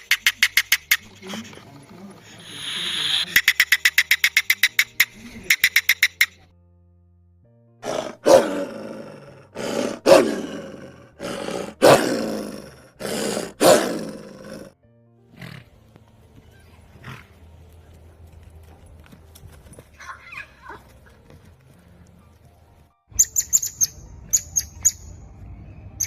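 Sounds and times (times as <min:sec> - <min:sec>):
big cat roaring: 0:07.8 - 0:14.8.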